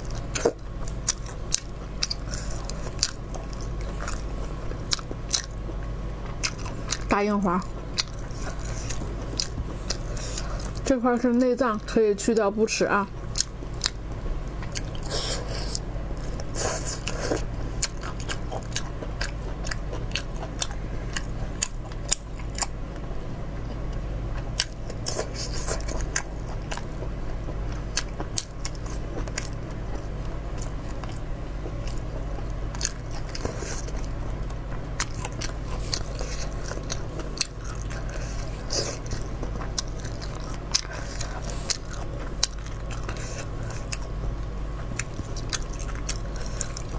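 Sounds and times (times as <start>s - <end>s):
chewing and crunching: 0.0s - 46.9s
steady low hum: 0.0s - 46.9s.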